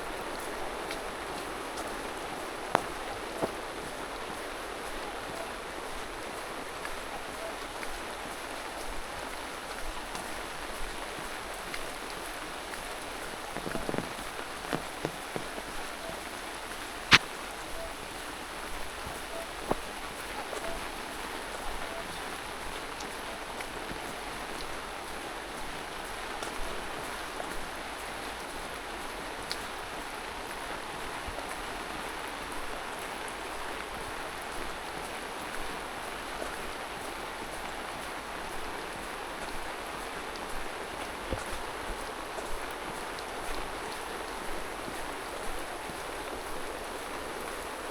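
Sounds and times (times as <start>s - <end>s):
steady rain falling: 0.0s - 47.9s
raindrop taps: 0.4s - 4.4s, 10.0s - 22.2s.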